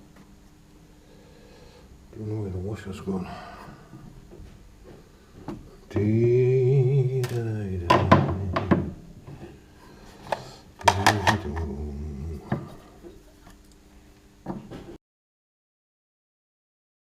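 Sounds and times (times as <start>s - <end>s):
man's drawn-out wordless vocal: 5.9s - 8.9s, 10.8s - 13.0s.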